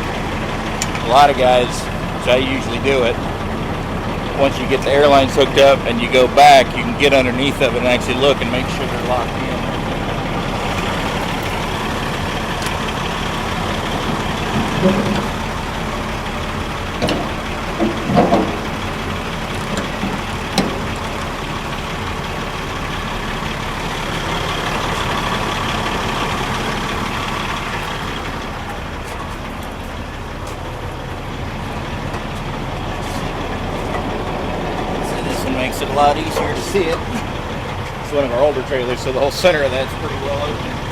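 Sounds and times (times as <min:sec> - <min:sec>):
diesel engine idling: 0:00.0 - 0:40.9
short clanks and knocks: 0:14.0 - 0:15.3, 0:17.0 - 0:18.8, 0:19.6 - 0:21.0.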